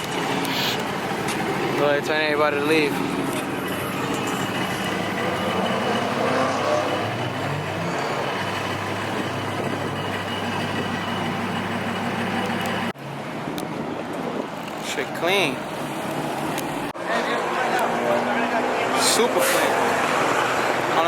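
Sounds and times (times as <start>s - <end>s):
vehicle engine droning: 0.0s - 14.6s
street noise: 0.0s - 21.0s.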